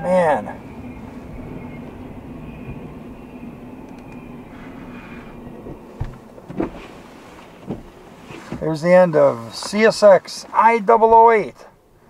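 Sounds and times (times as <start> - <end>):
train wheels rumbling on rail: 0.5 - 9.8.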